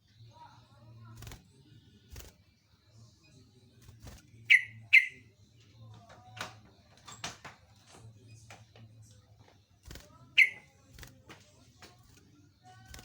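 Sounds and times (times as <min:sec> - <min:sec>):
bulbul calling: 0:04.5 - 0:05.2, 0:10.4 - 0:10.7
sharp bird chirps: 0:04.5 - 0:05.2, 0:10.4 - 0:10.7.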